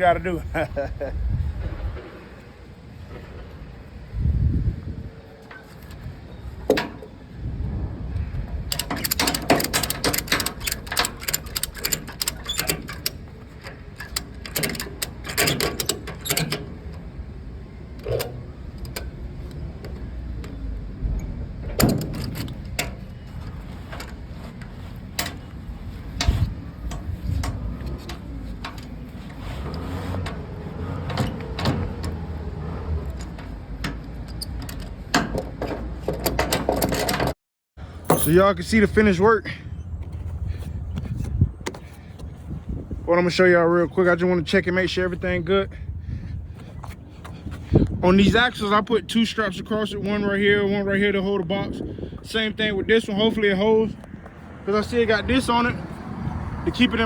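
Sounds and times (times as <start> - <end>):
strap hardware clanking: 5.4 - 7.2, 8.5 - 17.1, 18.0 - 20.6, 21.2 - 37.4, 38.0 - 38.7
ratchet strap clicking: 8.7 - 16.6.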